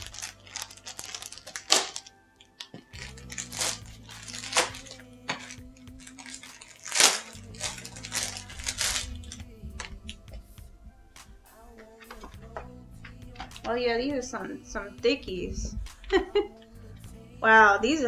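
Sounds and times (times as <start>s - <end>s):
packaging tearing and crinkling: 0.0s - 10.2s
soft background music: 0.0s - 18.0s.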